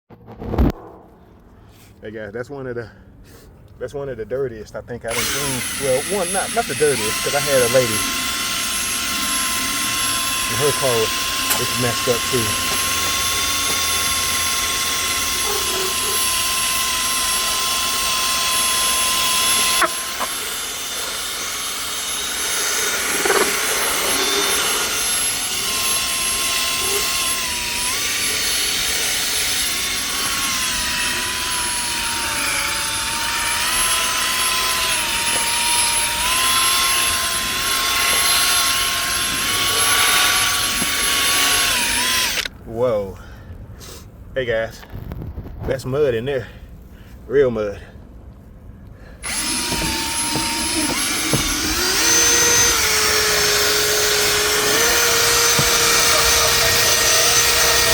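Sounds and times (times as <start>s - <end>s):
extraction vacuum whining: 5.1s - 42.5s, 49.2s - 57.9s.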